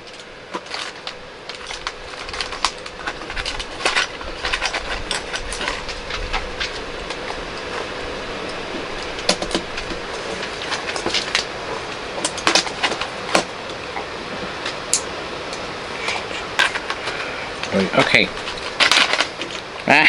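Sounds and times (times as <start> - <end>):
steady background hiss: 0.0 - 20.0
plastic bricks clicking and rattling: 0.1 - 7.4.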